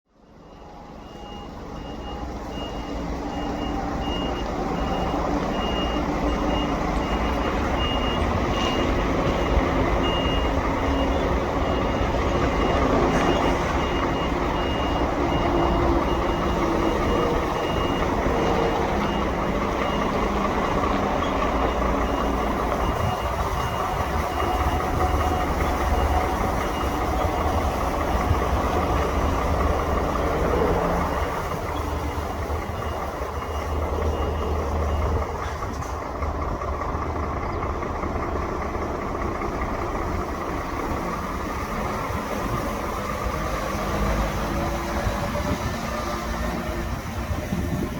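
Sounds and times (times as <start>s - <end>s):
truck diesel engine running: 0.1s - 47.9s
reversing alarm beeping: 0.2s - 37.2s.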